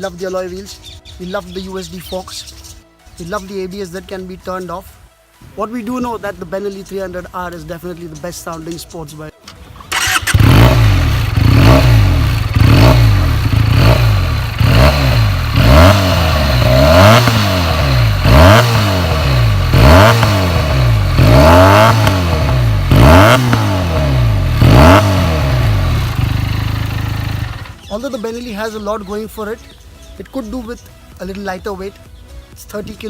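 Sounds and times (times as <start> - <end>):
motorcycle engine throttle blips: 9.4 - 28.0.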